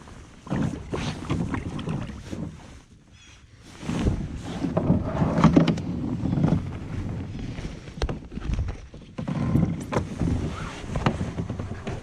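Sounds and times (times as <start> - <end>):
water splashing around kayak: 0.0 - 12.0.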